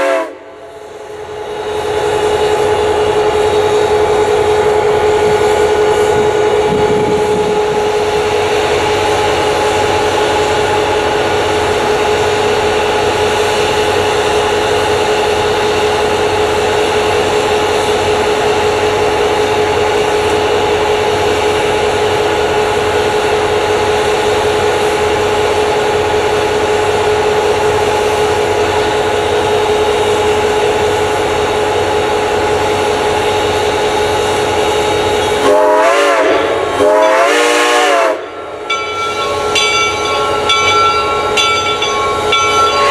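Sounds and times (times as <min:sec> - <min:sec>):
steam locomotive whistle: 0:00.0 - 0:00.6, 0:35.2 - 0:42.9
steam train running: 0:00.0 - 0:42.9.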